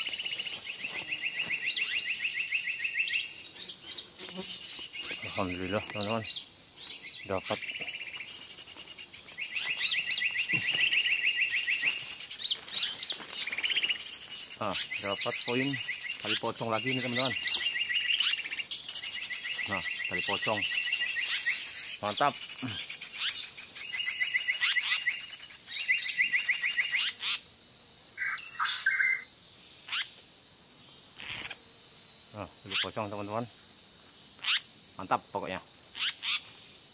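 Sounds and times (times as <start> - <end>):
bird trill: 0.0 - 27.4, 28.2 - 29.3, 29.9 - 30.1, 34.4 - 34.7
repeated bird chirps: 0.0 - 27.4, 28.2 - 29.3.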